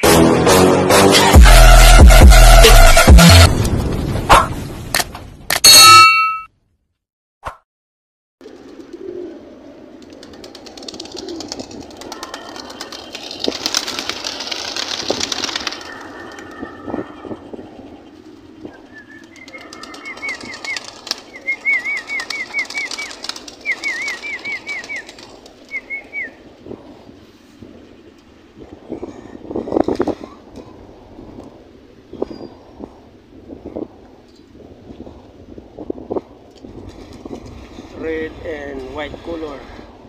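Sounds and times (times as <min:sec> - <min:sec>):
pigeon wings flapping: 0:08.4 - 0:16.7, 0:18.2 - 0:26.3, 0:36.6 - 0:37.9
pigeons chirping: 0:08.4 - 0:30.8.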